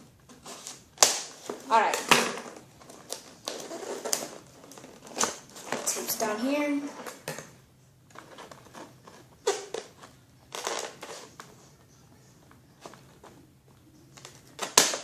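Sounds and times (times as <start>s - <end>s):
crinkling and scraping: 0.0s - 15.0s.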